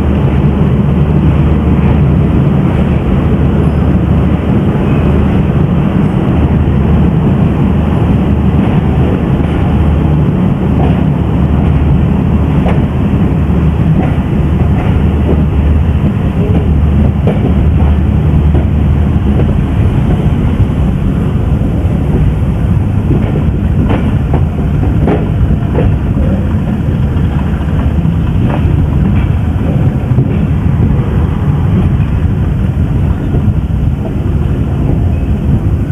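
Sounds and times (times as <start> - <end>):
train rumbling along track: 0.0 - 35.9
wheels clicking over rail joints: 23.1 - 32.3.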